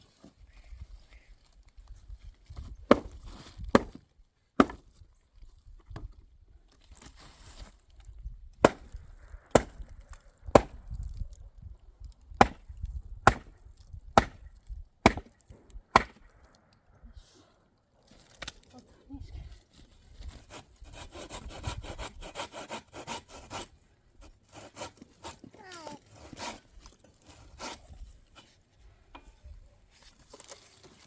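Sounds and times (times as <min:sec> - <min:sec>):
wood chopping blows: 0:02.9 - 0:04.0, 0:04.6 - 0:04.8, 0:08.6 - 0:11.0, 0:12.4 - 0:13.6, 0:14.2 - 0:16.5.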